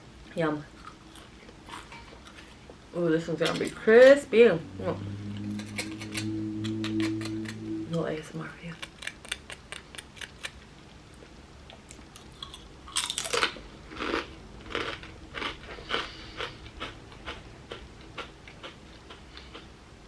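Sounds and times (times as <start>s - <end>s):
potato chip crunching: 11.8s - 18.8s.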